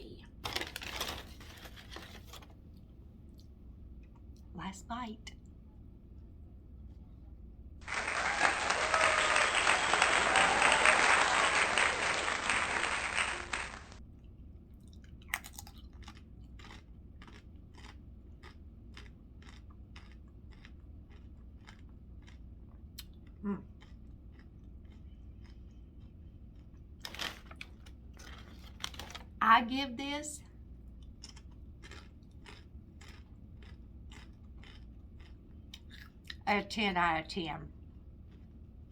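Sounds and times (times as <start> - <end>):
chewing food close-up: 14.1 - 29.2, 30.8 - 36.5, 37.8 - 38.9.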